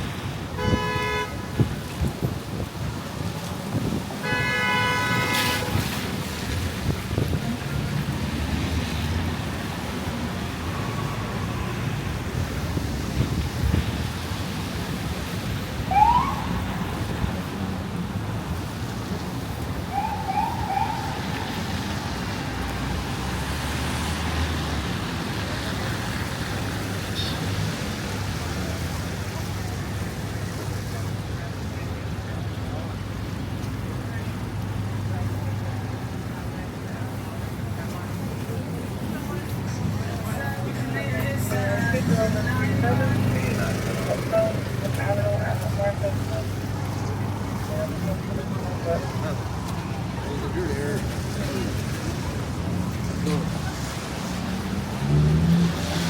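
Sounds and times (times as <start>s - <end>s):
city traffic rumble: 0.0s - 56.0s
rain: 0.0s - 56.0s
car horn honking: 0.6s - 1.4s, 4.2s - 5.8s
wind buffeting microphone: 1.5s - 4.2s, 5.0s - 22.2s
emergency siren whoops: 15.9s - 16.9s, 19.9s - 22.0s.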